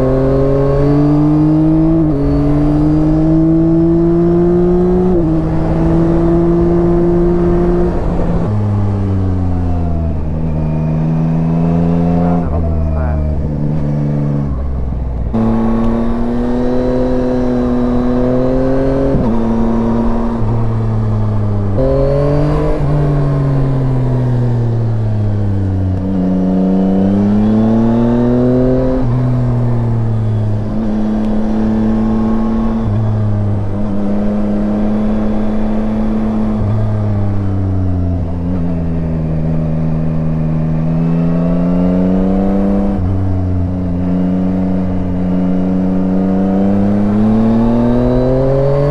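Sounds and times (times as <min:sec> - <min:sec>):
motorcycle engine revving with gear changes: 0:00.0 - 0:48.9.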